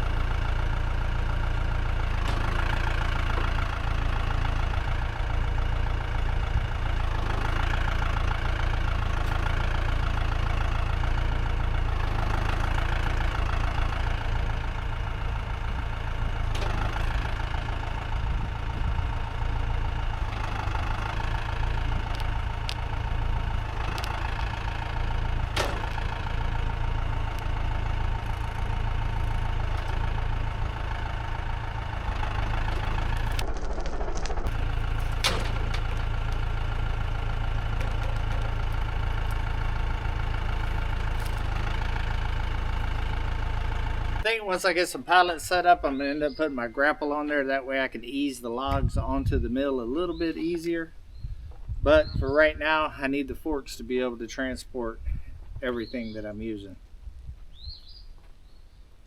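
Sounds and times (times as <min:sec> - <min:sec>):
tractor engine running: 0:00.0 - 0:59.0
sharp clanks and knocks: 0:02.1 - 0:05.0, 0:16.4 - 0:18.0, 0:22.0 - 0:42.6.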